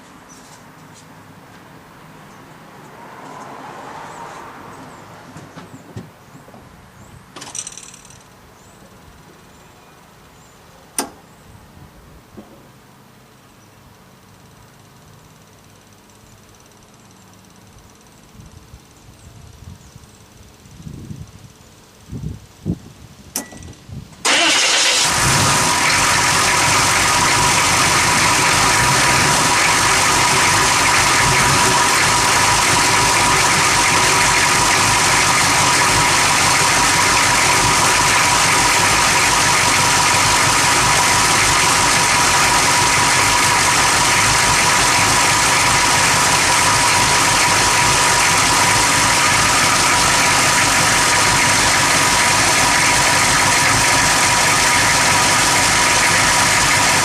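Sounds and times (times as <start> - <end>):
engine idling roughly: 24.2 - 57.0.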